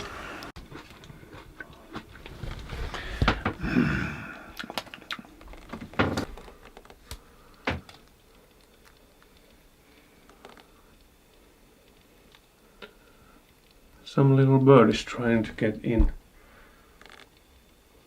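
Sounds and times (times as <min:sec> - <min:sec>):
knocks and thuds: 0:05.8 - 0:06.3.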